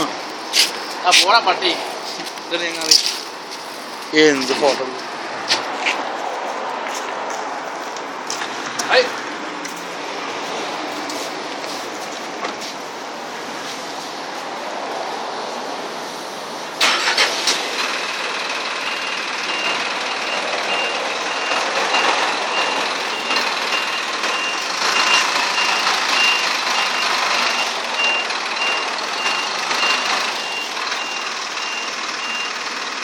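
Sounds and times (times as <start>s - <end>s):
traffic and street noise: 0.0s - 33.0s
vehicle reversing alarm beeping: 18.3s - 33.0s.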